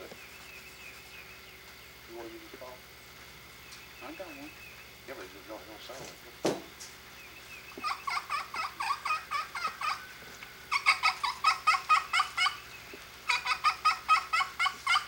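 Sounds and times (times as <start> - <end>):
turkey call yelps: 7.7 - 15.0.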